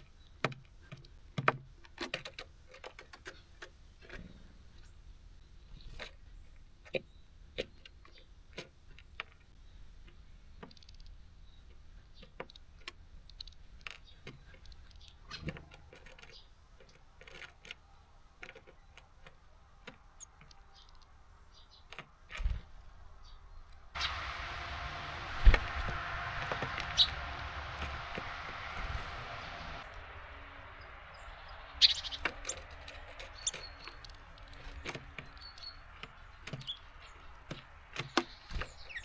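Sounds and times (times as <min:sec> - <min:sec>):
beaks tapping on seed feeder: 0:24.0 - 0:39.0.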